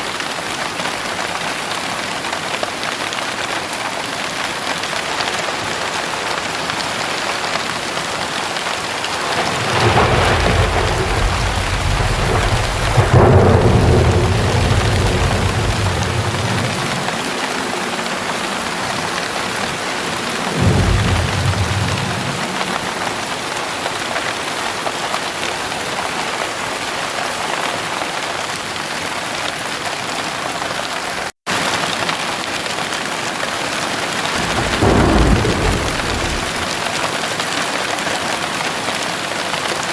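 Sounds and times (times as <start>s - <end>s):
heavy rain pouring: 0.0s - 39.9s
thunderclap: 5.5s - 24.2s, 34.0s - 37.3s
thunder rumbling: 5.6s - 24.1s, 34.0s - 37.3s.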